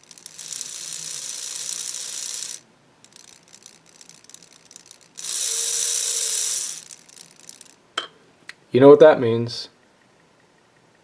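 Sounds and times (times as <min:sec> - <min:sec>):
small electric motor whirring: 0:00.0 - 0:07.8
steady hum: 0:00.0 - 0:08.7.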